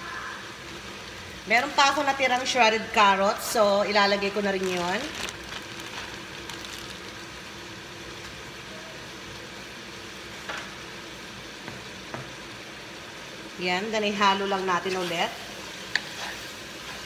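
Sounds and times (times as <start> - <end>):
food sizzling in a pot: 0.0 - 17.0
plastic bag rustling: 4.2 - 7.4.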